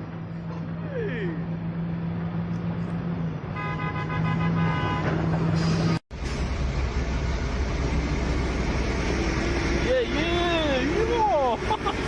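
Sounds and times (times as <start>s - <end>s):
vehicle horn: 3.5s - 5.3s
heavy truck engine running: 5.2s - 12.0s
deep low engine rumble: 5.4s - 12.0s.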